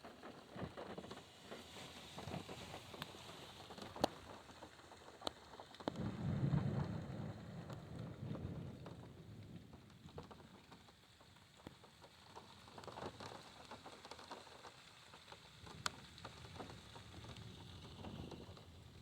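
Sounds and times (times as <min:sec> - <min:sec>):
rain pattering on a car: 0:00.0 - 0:19.0.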